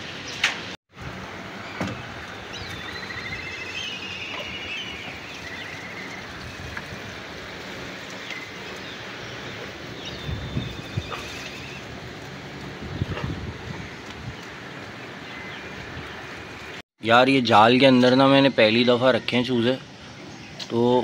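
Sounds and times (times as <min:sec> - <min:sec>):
outdoor background noise: 0:00.0 - 0:21.0
birds chirping trills: 0:01.2 - 0:16.8.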